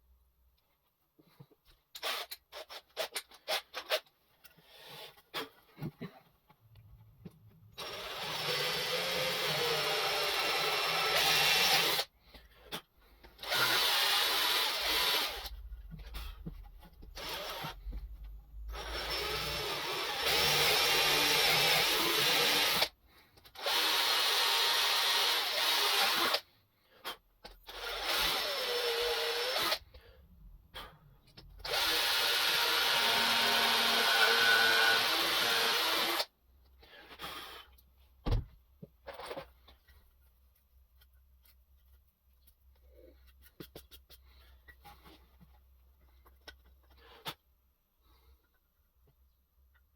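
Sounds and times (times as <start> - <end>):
power drill drilling into wood: 7.8 - 12.1, 13.4 - 15.5, 17.2 - 17.8, 18.7 - 22.9, 23.6 - 26.4, 27.7 - 29.8, 31.6 - 36.3.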